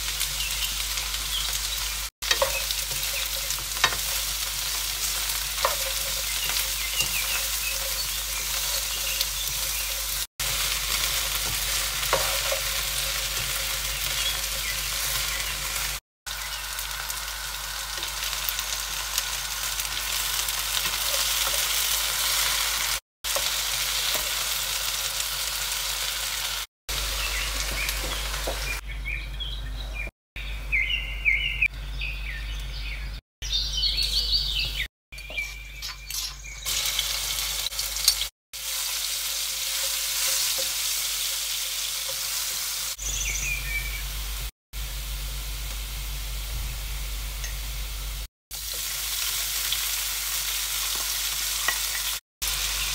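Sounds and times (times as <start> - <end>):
spices crackling in oil: 0.0 - 28.8, 35.2 - 43.6, 48.5 - 52.9
vegetables sizzling in oil: 0.0 - 28.8, 36.1 - 52.9
spatula scraping a wok: 2.3 - 13.7.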